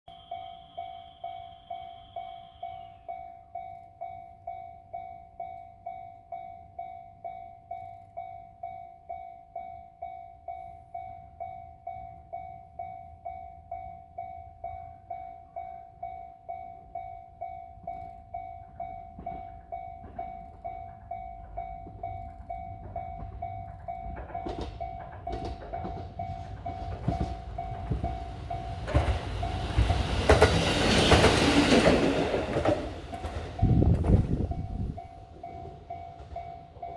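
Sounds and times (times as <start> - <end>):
level crossing warning bell: 0.1 - 36.9
diesel railcar engine: 17.8 - 36.9
train wheels clattering: 18.6 - 36.9.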